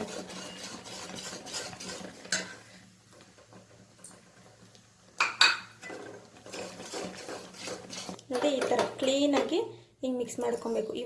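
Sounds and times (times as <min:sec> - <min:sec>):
utensil stirring and scraping in a pan: 0:00.0 - 0:09.6.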